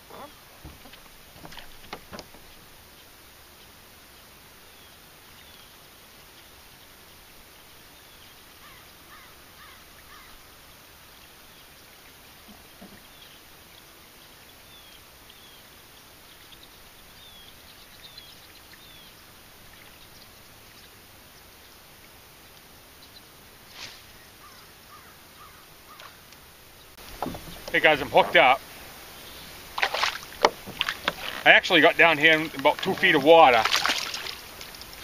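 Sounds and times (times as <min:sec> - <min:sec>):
faint bird chirps: 0:24.0 - 0:26.2.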